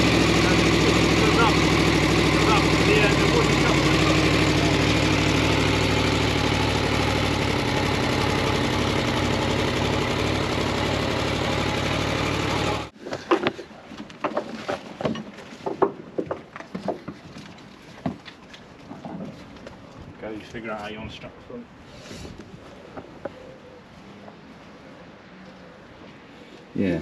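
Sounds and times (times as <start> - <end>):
motorcycle engine idling: 0.0 - 12.9
knocks and clunks: 13.1 - 18.2.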